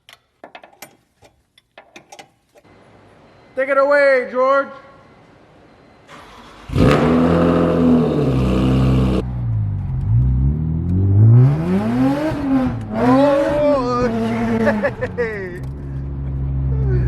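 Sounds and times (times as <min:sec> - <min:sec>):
car engine revving: 0:06.4 - 0:16.8.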